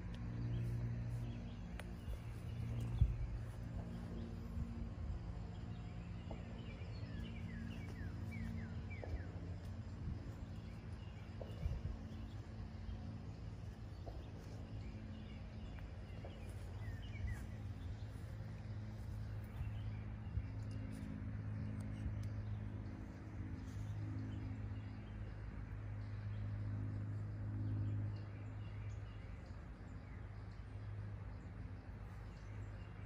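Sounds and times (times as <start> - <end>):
steady low hum: 0.0 - 33.0
small birds chirping: 0.1 - 33.0.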